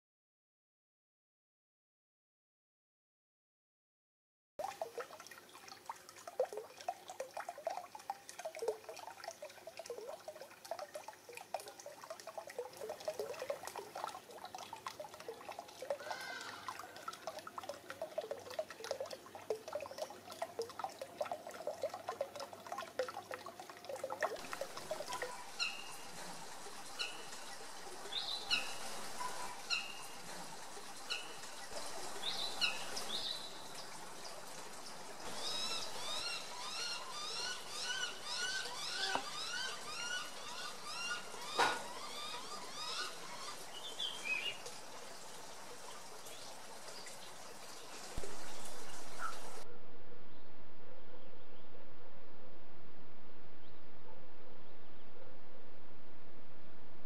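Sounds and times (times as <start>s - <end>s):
birds chirping low: 24.7s - 45.4s, 46.0s - 51.9s.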